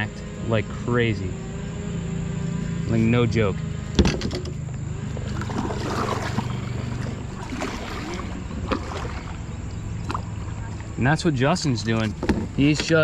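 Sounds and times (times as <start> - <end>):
steady low hum: 0.0 - 13.0
water wash: 5.2 - 11.3.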